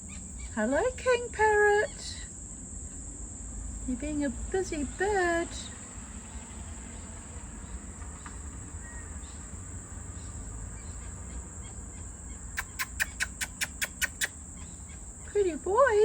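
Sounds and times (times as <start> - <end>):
insects shrilling: 7.0 - 16.0
rapid sharp clicks: 12.6 - 14.3.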